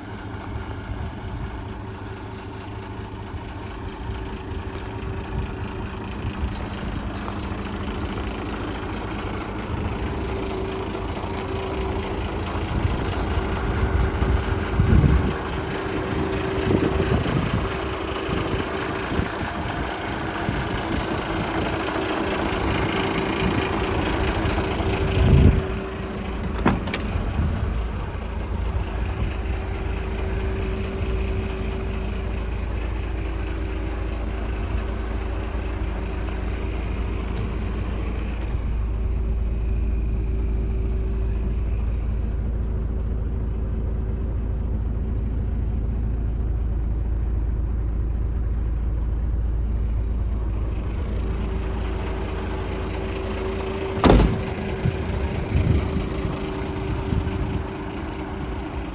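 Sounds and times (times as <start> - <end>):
diesel truck engine idling: 0.0 - 58.9
loud thump: 26.5 - 27.3, 54.0 - 54.9.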